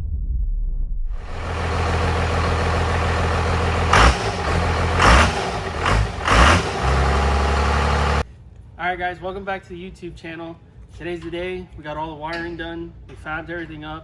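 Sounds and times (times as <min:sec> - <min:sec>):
diesel engine idling and revving: 0:01.2 - 0:08.2.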